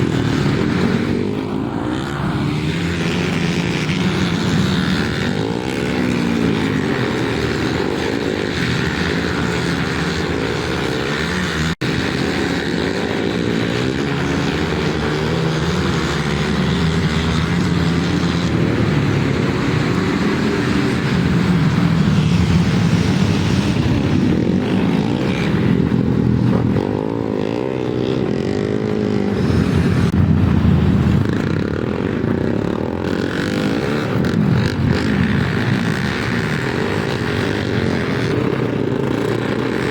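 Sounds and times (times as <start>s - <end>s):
racing motorcycles accelerating: 0.0s - 39.9s.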